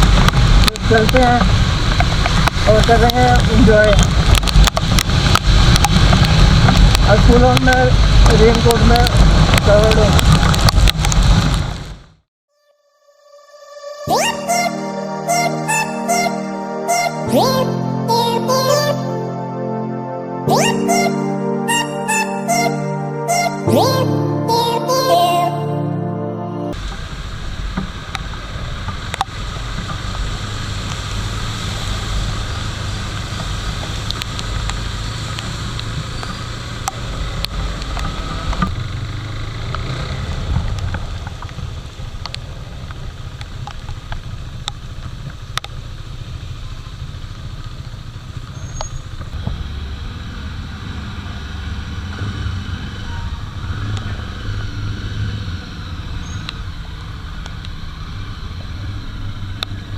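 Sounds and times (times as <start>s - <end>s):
rain noise: 0.0s - 12.2s, 26.8s - 52.2s.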